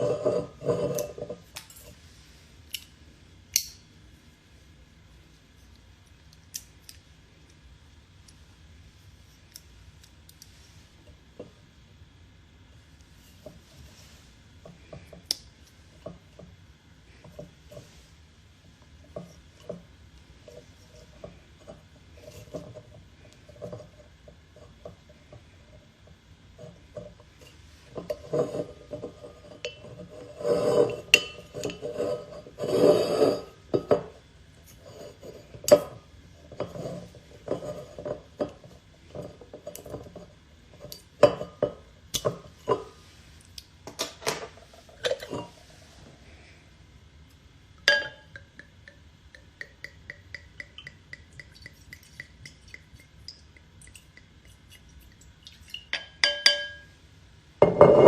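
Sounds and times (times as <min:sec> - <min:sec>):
dishes clinking and knocking: 0:47.8 - 0:52.9, 0:55.8 - 0:57.0, 0:57.6 - 0:58.0.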